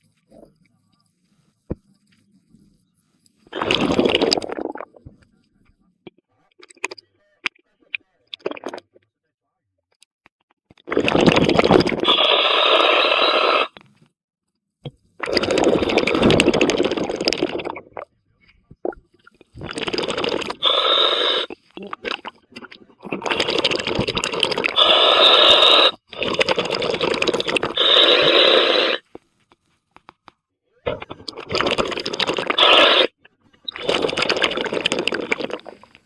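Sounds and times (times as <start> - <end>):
bubbling exhalations: 3.5 - 5.1, 8.3 - 8.8, 10.9 - 13.8, 15.2 - 18.0, 18.8 - 29.1, 30.9 - 36.0
diver breathing through regulator: 19.5 - 21.6, 23.1 - 29.1, 31.5 - 33.1, 33.7 - 36.0.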